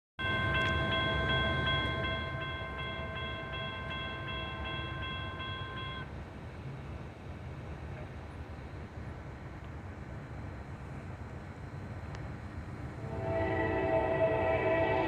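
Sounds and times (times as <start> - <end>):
train rumble: 0.2 - 15.0
locomotive air horn chord: 13.0 - 15.0.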